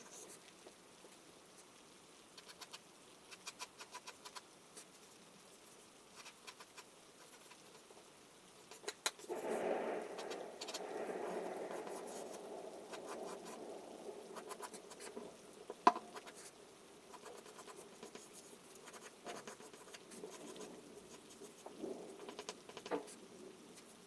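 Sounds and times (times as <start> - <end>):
small ticks: 0.0 - 24.0
charcoal scratching on paper: 5.5 - 7.9, 17.1 - 22.9.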